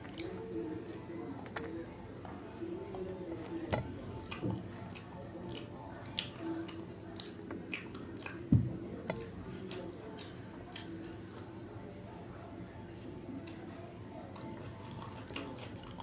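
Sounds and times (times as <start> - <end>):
close chewing with mouth clicks: 0.0 - 0.5, 2.8 - 11.6, 13.3 - 16.0.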